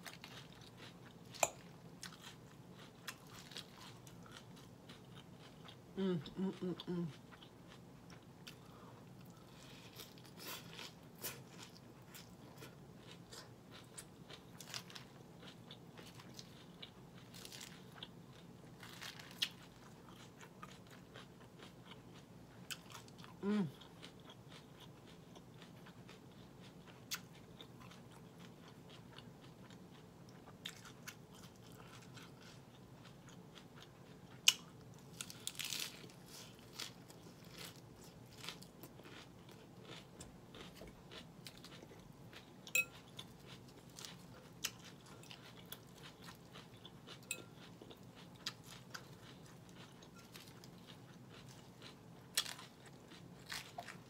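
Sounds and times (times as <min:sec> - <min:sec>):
crunching lettuce: 0:09.4 - 0:21.7, 0:34.5 - 0:54.0.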